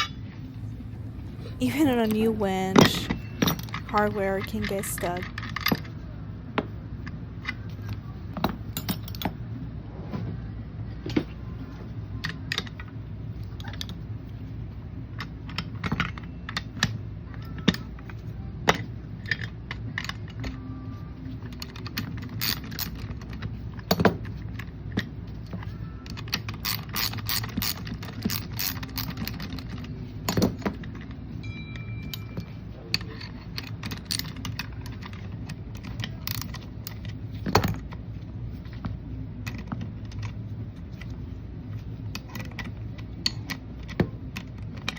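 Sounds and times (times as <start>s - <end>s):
low shop hum: 0.0s - 44.9s
metal parts and tools clinking: 8.7s - 9.3s, 21.6s - 24.1s, 25.0s - 37.8s.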